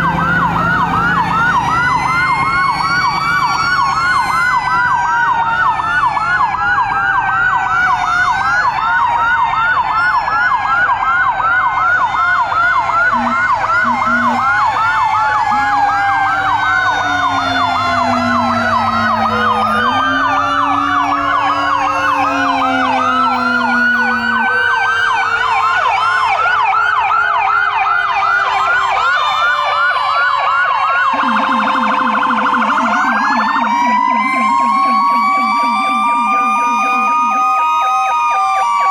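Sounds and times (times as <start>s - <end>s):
fire truck sirens yelping: 0.0s - 38.9s
low held siren tone: 0.0s - 38.9s
wailing siren tones: 0.0s - 38.9s
low fast-pulsing tone: 13.2s - 14.6s, 15.5s - 25.2s.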